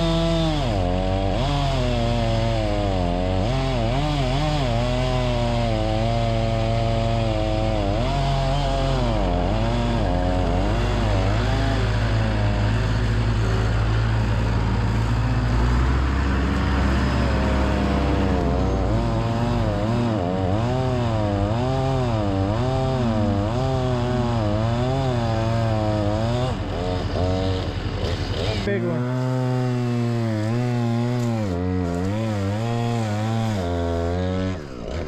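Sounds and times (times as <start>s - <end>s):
chainsaw cutting log: 0.0s - 35.0s
low engine drone: 8.6s - 23.5s.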